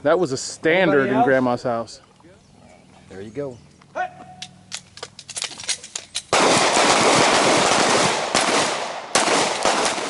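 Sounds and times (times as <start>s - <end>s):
handguns firing rapidly: 6.1s - 10.0s.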